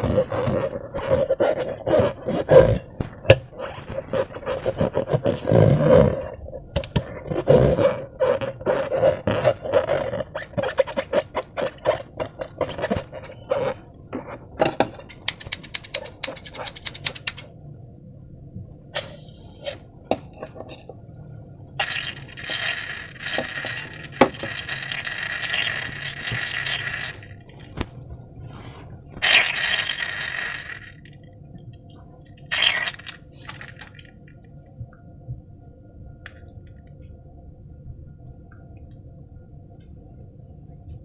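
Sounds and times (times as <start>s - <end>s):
sharp crackling clicks: 15.1s - 17.5s.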